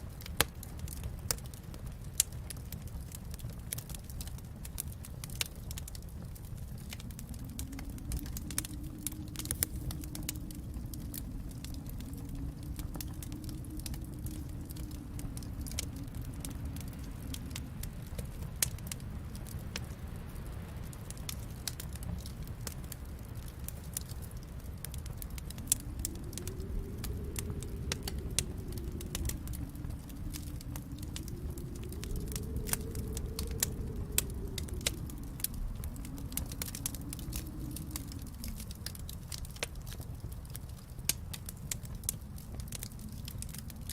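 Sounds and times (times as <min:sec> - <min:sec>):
fire low rumble: 0:00.0 - 0:43.9
wood fire crackling: 0:00.0 - 0:43.9.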